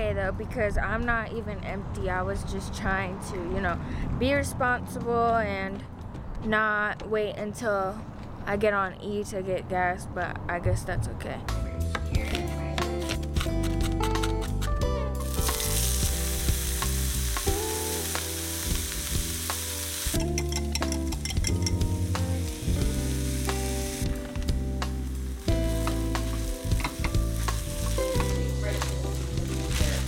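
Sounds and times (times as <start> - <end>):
background music: 11.3 - 30.0
food sizzling in a pan: 15.2 - 30.0.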